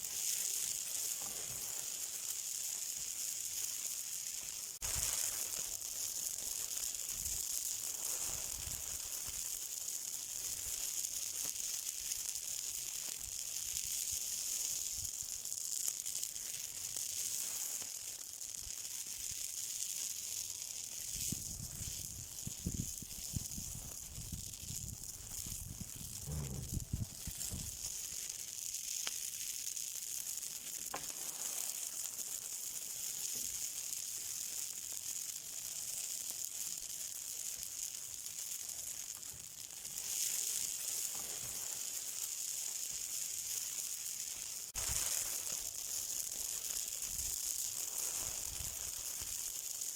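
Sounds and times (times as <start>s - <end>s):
burning hiss and sizzle: 0.0s - 49.9s
faint crackles: 0.0s - 49.9s
low rumbling: 26.0s - 27.7s.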